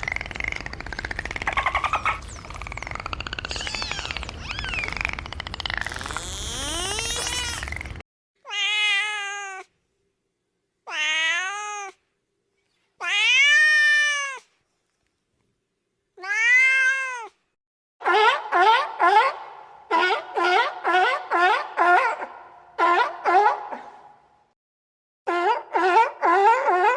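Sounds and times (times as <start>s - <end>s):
cat meowing: 6.8s - 7.7s, 8.5s - 9.7s, 10.9s - 12.0s, 16.2s - 17.4s.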